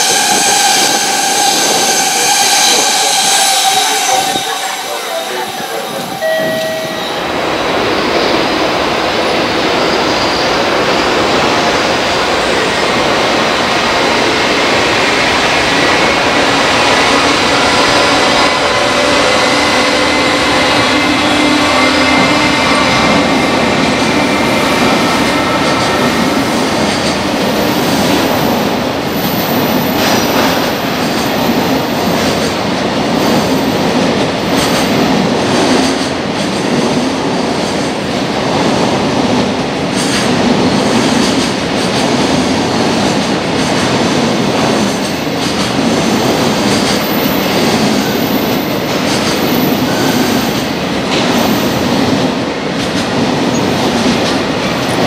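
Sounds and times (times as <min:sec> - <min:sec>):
high wheel squeal: 0:00.0 - 0:07.7
train wheels clacking on rails: 0:00.0 - 0:55.0.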